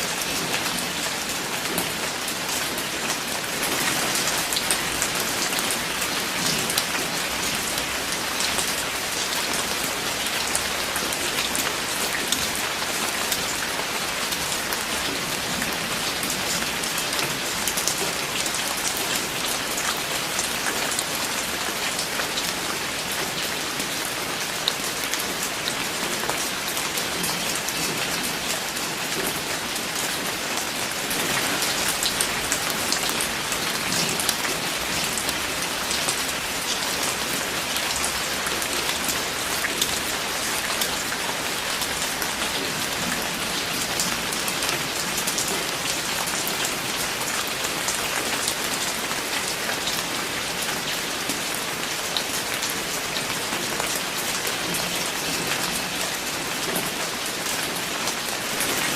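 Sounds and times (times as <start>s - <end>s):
rain falling on a surface: 0.0s - 58.9s.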